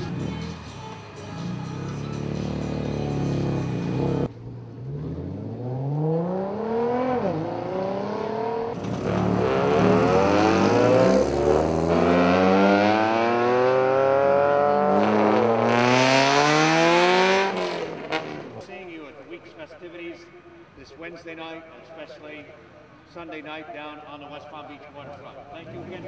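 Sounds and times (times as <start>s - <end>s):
race car engines accelerating: 0.0s - 18.6s, 25.5s - 26.0s.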